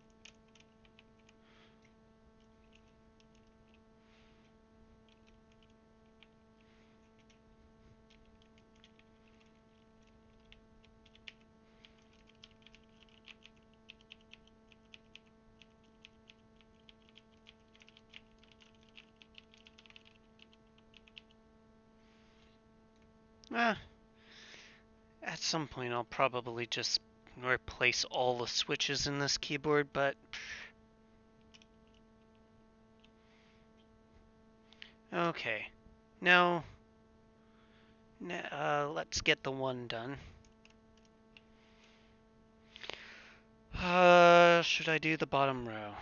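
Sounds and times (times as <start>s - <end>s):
keyboard keycaps clicking: 0.0s - 1.4s, 8.1s - 21.4s
low electrical hum: 0.0s - 46.0s.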